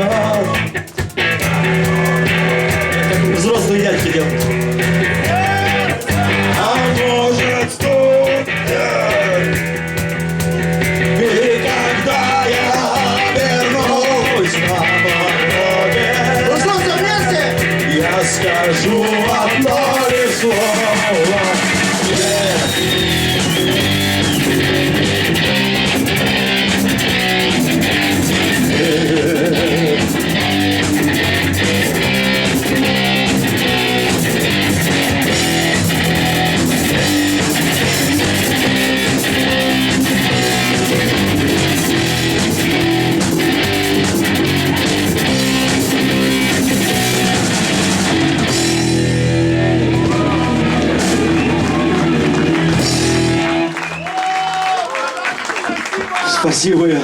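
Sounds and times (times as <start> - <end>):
electric guitars: 0.0 - 54.6
bass guitar: 0.0 - 54.7
drum kit: 0.0 - 54.7.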